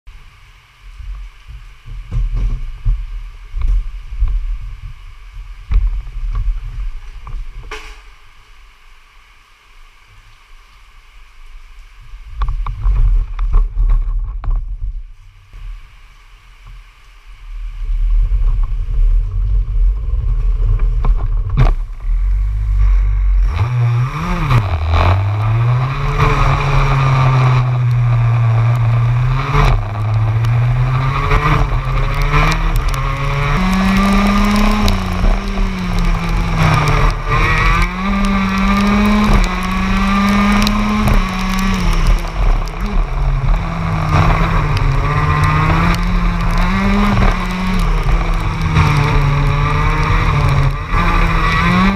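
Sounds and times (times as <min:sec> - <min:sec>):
low rumbling: 0:00.1 - 0:51.9
kart engine revving: 0:21.7 - 0:51.9.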